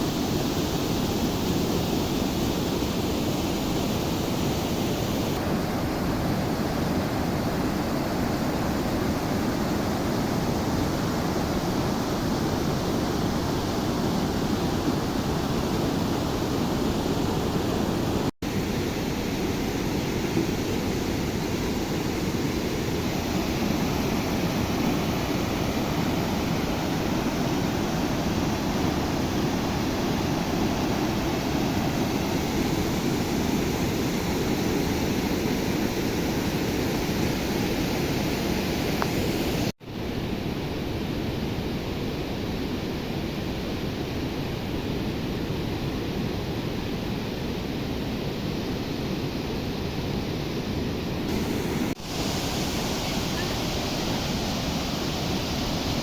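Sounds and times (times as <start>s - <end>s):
rushing floodwater: 0.0s - 39.7s, 51.3s - 56.0s.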